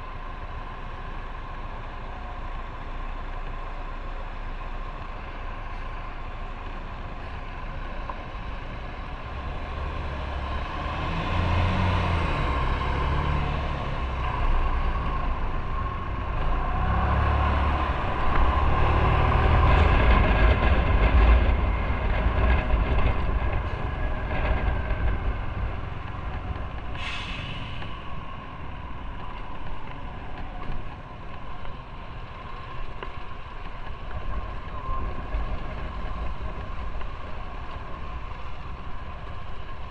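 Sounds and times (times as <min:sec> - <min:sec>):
wind and road noise: 0:00.0 - 0:39.9
short hiss: 0:27.0 - 0:27.9.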